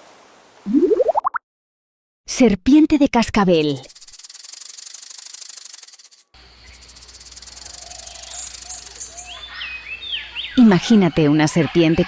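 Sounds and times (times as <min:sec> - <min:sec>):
rattlesnake tail rattling: 0:03.6 - 0:09.4
short chirps: 0:03.6 - 0:09.4.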